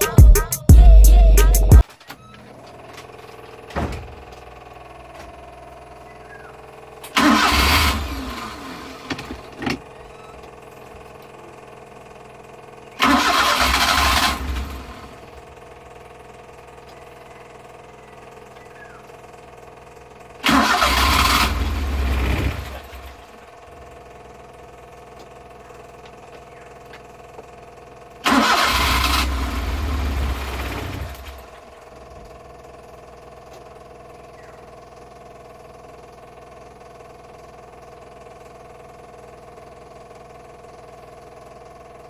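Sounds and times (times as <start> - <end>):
engine cranking on starter: 6.9 - 10.6, 11.7 - 17.0, 20.2 - 25.5, 28.2 - 33.8.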